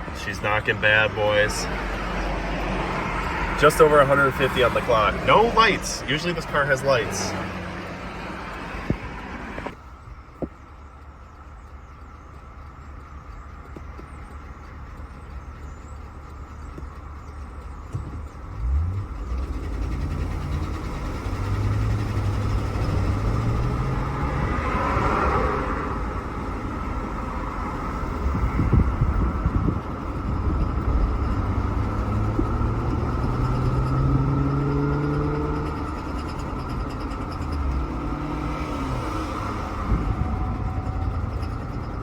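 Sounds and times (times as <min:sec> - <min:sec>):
car engine accelerating: 0:00.0 - 0:42.0
road noise: 0:00.0 - 0:42.0
engine rod knock: 0:10.3 - 0:18.5.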